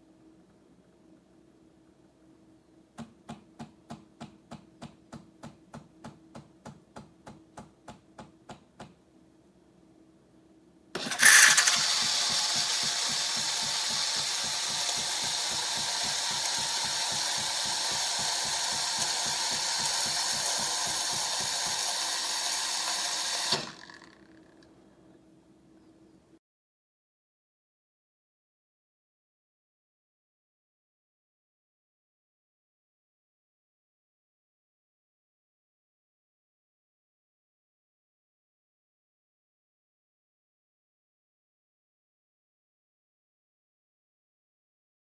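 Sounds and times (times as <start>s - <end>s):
espresso machine whirr and hiss: 11.0s - 24.3s
espresso machine short pulses: 11.0s - 24.4s.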